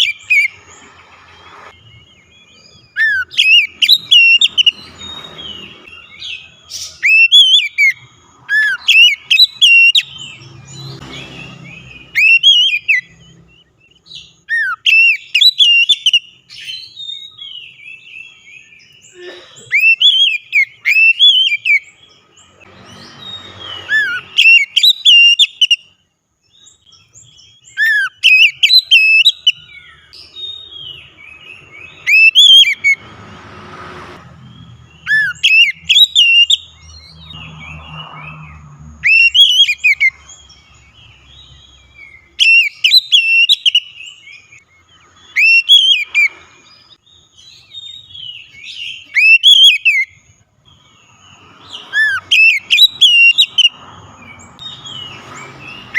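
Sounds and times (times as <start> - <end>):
bird singing whistled phrases: 1.7 - 10.3, 11.6 - 19.1, 19.7 - 21.9, 22.9 - 25.9, 26.9 - 33.0, 35.0 - 37.0, 39.0 - 40.2, 41.4 - 44.6, 45.2 - 46.4, 47.3 - 50.2, 51.8 - 53.7.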